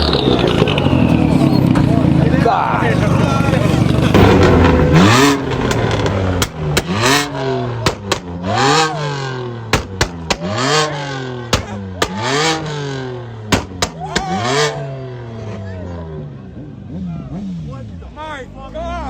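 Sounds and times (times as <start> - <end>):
car engine revving: 0.0 - 19.0
exhaust pops: 3.2 - 14.8.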